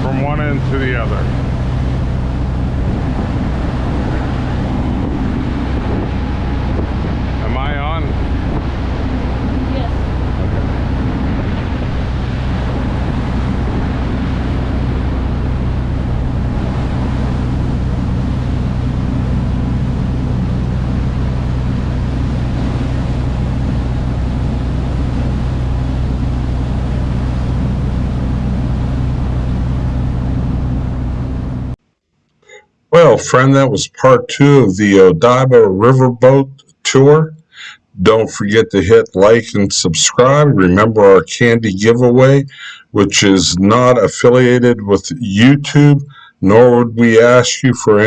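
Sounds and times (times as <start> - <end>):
boat engine humming: 0.0 - 31.8
wind and water rushing: 0.0 - 31.8.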